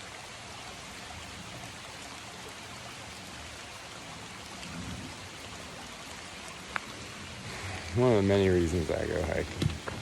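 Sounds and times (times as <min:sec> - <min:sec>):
stream rushing: 0:00.0 - 0:10.0.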